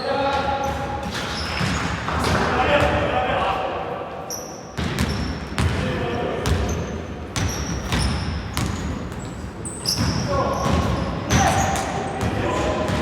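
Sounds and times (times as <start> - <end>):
sneakers squeaking on court: 0.0 - 2.4, 4.3 - 5.8, 6.4 - 13.0
basketball bouncing on court: 4.8 - 5.8, 6.4 - 13.0.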